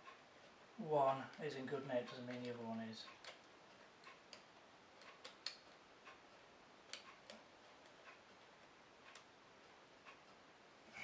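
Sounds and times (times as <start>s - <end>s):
small parts and tool clicking: 2.2s - 9.3s.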